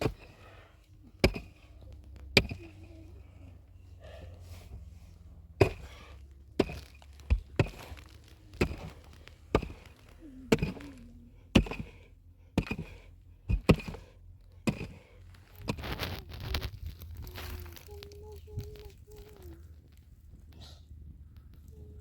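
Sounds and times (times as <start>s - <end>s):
hand tool chopping: 0.0s - 0.5s, 1.1s - 2.8s, 5.6s - 12.0s, 12.6s - 16.6s.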